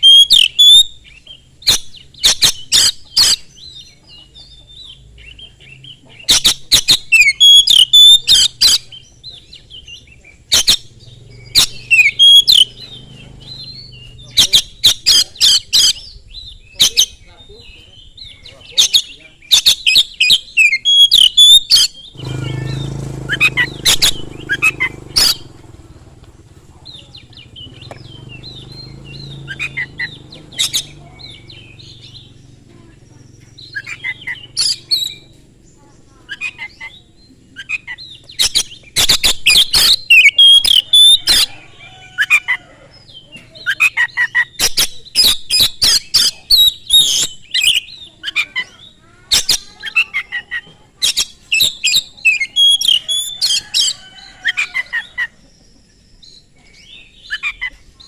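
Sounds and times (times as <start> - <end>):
bird singing whistles and clicks: 27.8 - 28.1.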